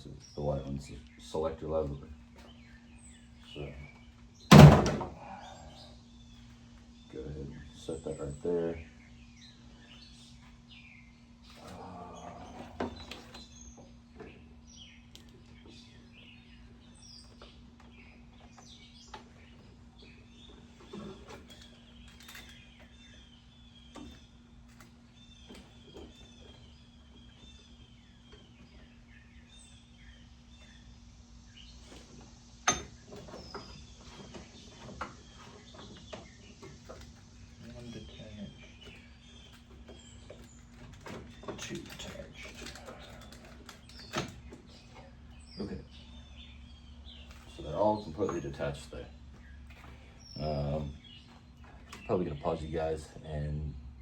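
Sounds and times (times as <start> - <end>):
birds chirping: 0.0 - 54.0
steady low hum: 0.0 - 54.0
light knocks and clinks: 32.6 - 37.0.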